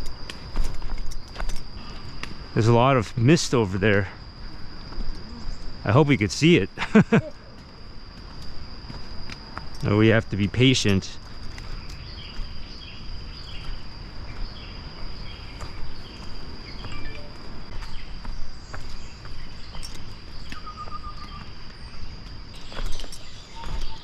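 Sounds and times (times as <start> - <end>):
high-pitched insect drone: 0.0 - 24.0
bird chirping: 11.7 - 24.0.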